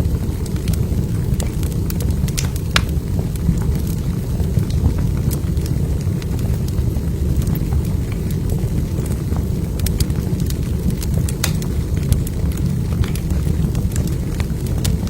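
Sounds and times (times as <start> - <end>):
burning logs crackling and popping: 0.0 - 15.0
fire flame rushing: 0.2 - 4.7, 9.6 - 14.3.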